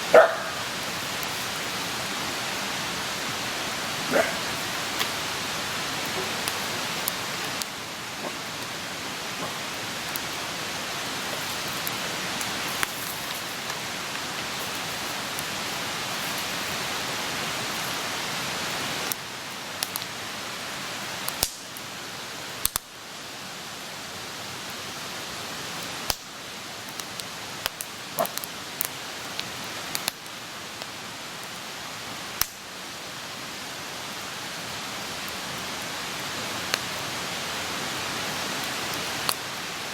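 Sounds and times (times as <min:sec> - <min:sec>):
wood crackling and popping: 0:00.0 - 0:16.8, 0:19.8 - 0:20.2, 0:21.2 - 0:21.8, 0:22.6 - 0:22.9, 0:25.7 - 0:31.6, 0:32.4 - 0:32.6, 0:38.6 - 0:39.7
hiss of flames: 0:00.0 - 0:39.9.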